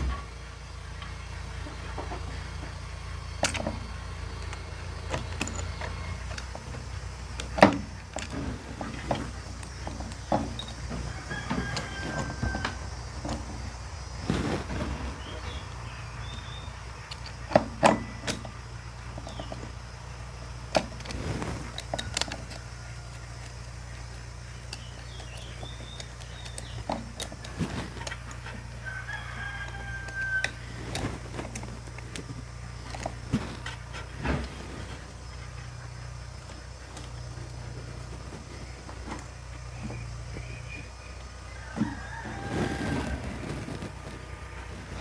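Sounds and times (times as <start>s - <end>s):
steady low hum: 0.0s - 45.0s
rooster crowing: 10.7s - 14.7s, 22.0s - 24.1s, 27.5s - 31.7s, 41.4s - 45.0s.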